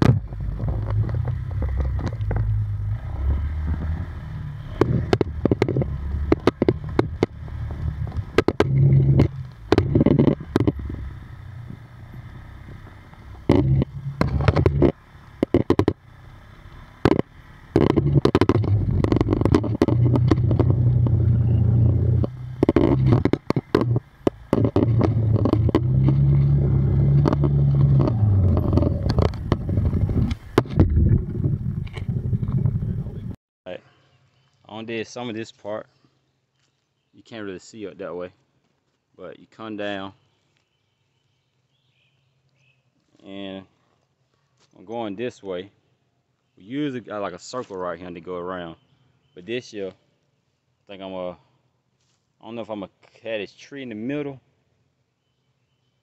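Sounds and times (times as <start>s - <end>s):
knocks and clatters over ground: 0.0s - 16.1s, 16.9s - 33.4s
off-road vehicle engine revving: 0.0s - 33.4s.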